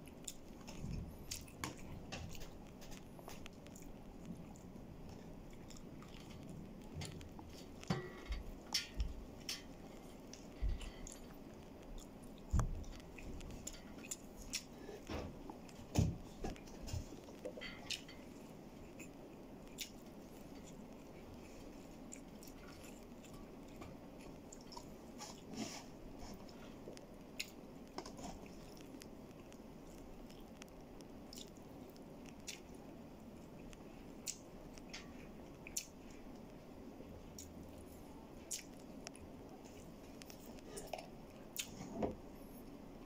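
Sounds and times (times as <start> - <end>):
low room hum: 0.0 - 43.0
person chewing food: 0.0 - 43.0.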